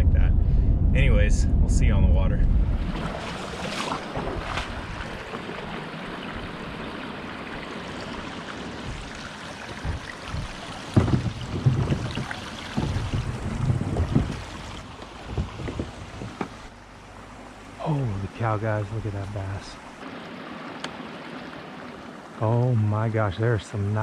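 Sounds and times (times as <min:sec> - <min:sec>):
wind noise on microphone: 0:00.0 - 0:05.8, 0:08.7 - 0:16.7
low uneven bumps: 0:00.0 - 0:16.8
moving water: 0:02.4 - 0:24.0.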